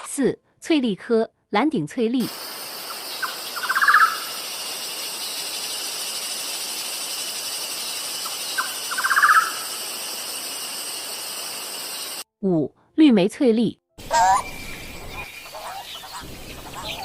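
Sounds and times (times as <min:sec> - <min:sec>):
insects chorus: 0:02.2 - 0:12.2, 0:14.0 - 0:17.0
bird call with rattling notes: 0:03.1 - 0:11.2.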